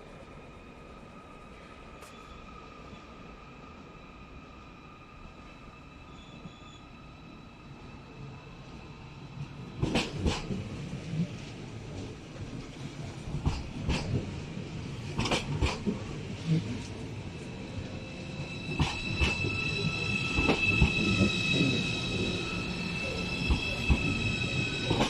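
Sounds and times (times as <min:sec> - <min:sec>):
high metallic squeal: 0:17.5 - 0:25.0.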